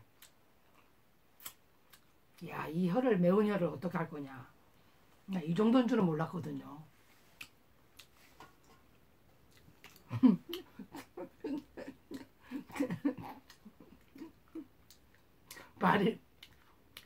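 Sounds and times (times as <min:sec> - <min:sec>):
wet chewing: 0:09.4 - 0:17.0.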